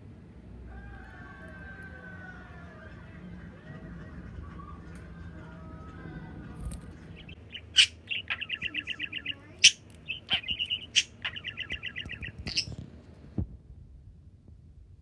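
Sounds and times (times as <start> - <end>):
sharp loud bird chips: 7.2 - 12.7
budgerigar chirping: 7.2 - 12.8.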